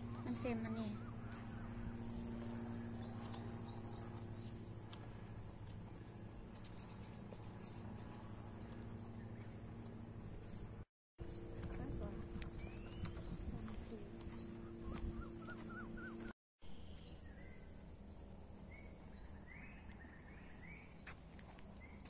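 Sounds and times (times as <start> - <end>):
low steady hum: 0.0 - 22.0
bird chirping: 12.4 - 21.2.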